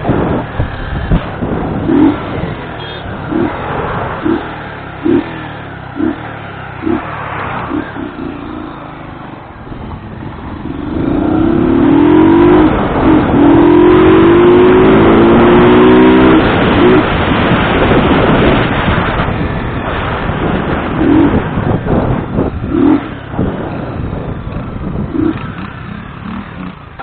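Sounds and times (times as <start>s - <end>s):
motorcycle engine accelerating: 0.0s - 27.0s
wind and road noise: 0.0s - 27.0s.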